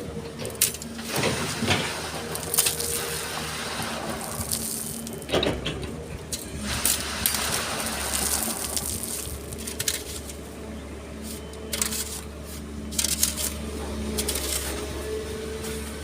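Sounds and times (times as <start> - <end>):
diesel engine humming: 0.0 - 16.0
sand and stones crunching: 0.8 - 5.4, 6.4 - 16.0.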